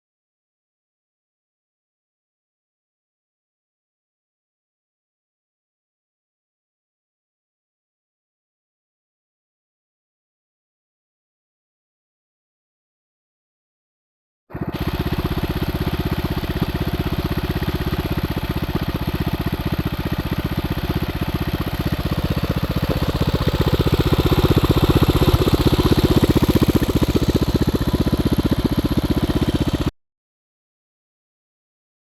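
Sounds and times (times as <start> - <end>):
minibike engine running: 14.5 - 29.9.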